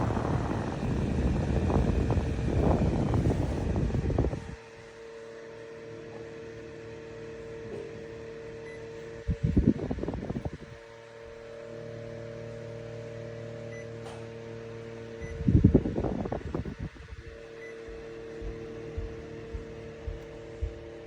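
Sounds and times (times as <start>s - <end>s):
airflow buffeting microphone: 0.0s - 4.9s, 9.1s - 10.8s, 15.2s - 21.0s
fan motor hum: 0.0s - 21.0s.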